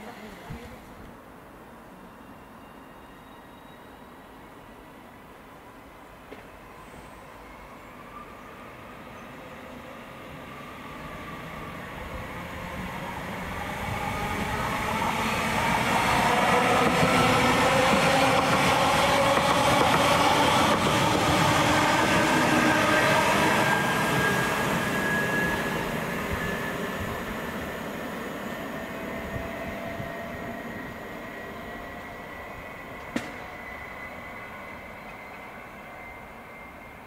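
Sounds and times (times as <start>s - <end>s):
train wheels on rails: 10.9s - 37.0s.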